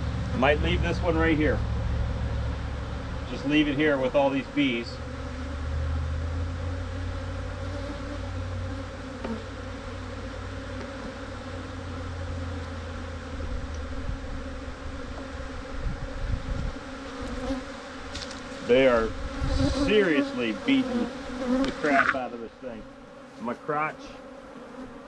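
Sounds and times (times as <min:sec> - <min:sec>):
honeybees buzzing: 0:00.0 - 0:25.0.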